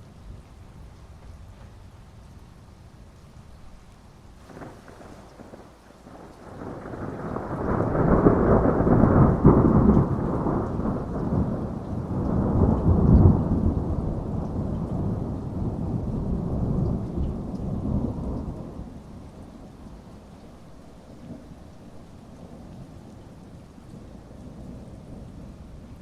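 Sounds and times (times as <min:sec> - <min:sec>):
heavy rain: 0:00.0 - 0:26.0
thunder rumbling: 0:04.4 - 0:20.4.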